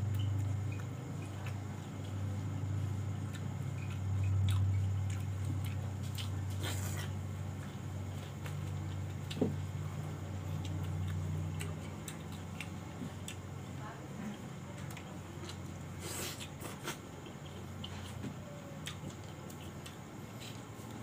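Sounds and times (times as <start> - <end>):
person chewing food: 0.0 - 13.8, 14.8 - 21.0.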